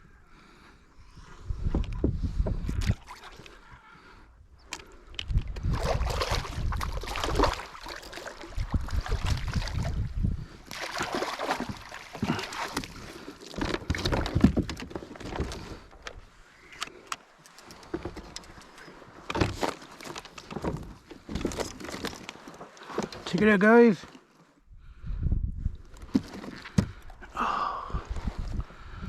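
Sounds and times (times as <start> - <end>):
wind buffeting microphone: 1.0 - 3.0, 4.4 - 7.8, 8.4 - 10.8, 24.7 - 26.1, 26.8 - 29.0
water splashing: 5.7 - 10.1, 10.7 - 14.0.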